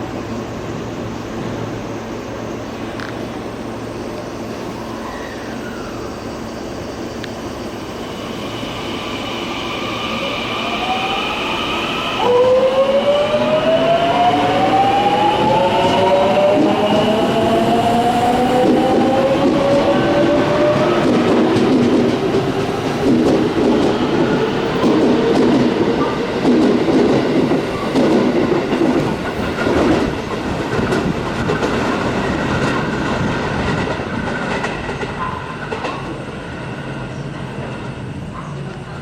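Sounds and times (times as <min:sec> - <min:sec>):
train wheels clattering: 0:18.5 - 0:36.3.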